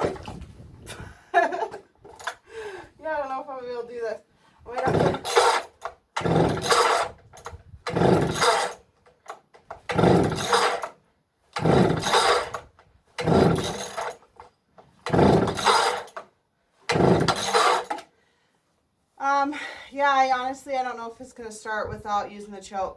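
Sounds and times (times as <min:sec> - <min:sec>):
chainsaw starter cord pulled: 0:02.1 - 0:02.4, 0:04.7 - 0:16.3, 0:16.9 - 0:18.1.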